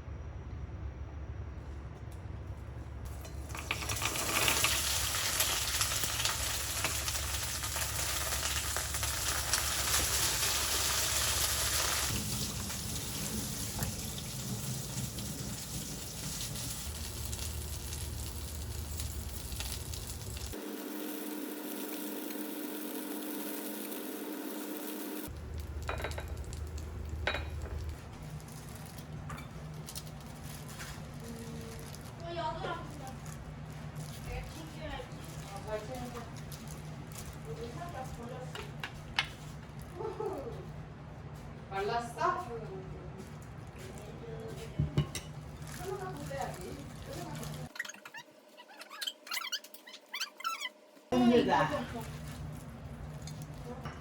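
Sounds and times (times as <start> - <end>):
food sizzling in a pan: 3.2 - 27.9.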